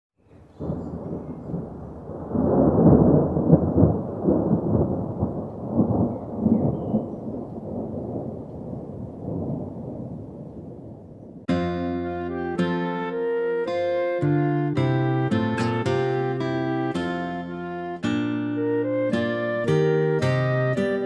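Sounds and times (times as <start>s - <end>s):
rain: 0.2s - 11.5s
rolling thunder: 0.5s - 11.5s.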